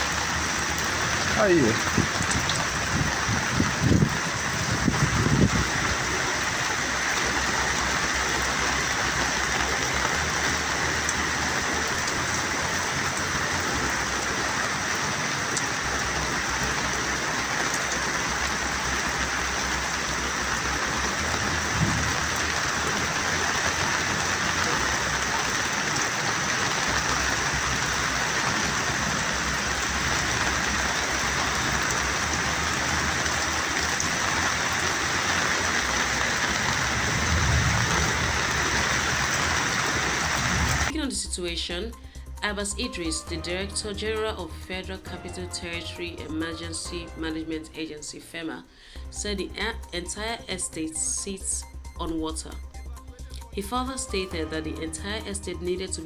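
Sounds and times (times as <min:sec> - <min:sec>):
heavy rain: 0:00.0 - 0:41.0.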